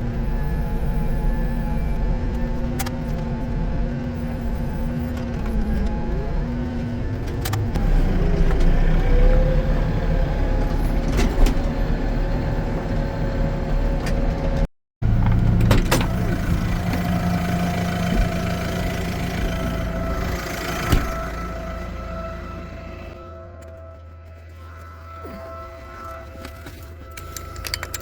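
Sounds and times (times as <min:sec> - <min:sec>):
farm vehicle engine running: 0:00.0 - 0:25.4.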